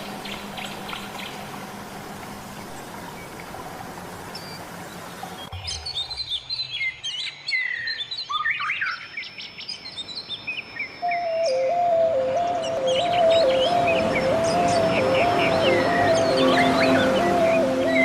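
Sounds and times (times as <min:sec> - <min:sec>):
small birds chirping: 0:00.0 - 0:01.6, 0:02.2 - 0:18.0
steady low note: 0:11.3 - 0:18.0
steady rushing noise: 0:12.3 - 0:18.0.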